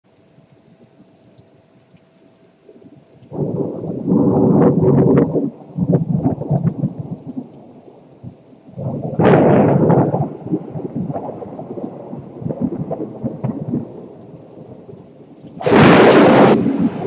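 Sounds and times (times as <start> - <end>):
thunder crack and rumble: 3.3 - 17.0.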